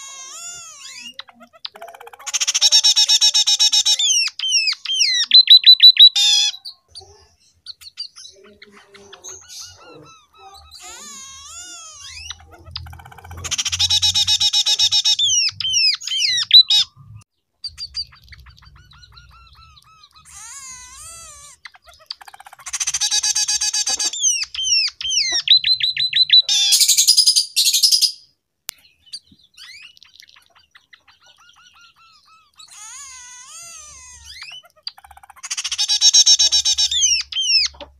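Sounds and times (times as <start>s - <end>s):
high rasping bird call: 0.0s - 7.1s, 9.0s - 16.9s, 17.7s - 28.0s, 31.4s - 37.9s
bird singing fast trills: 0.0s - 37.9s.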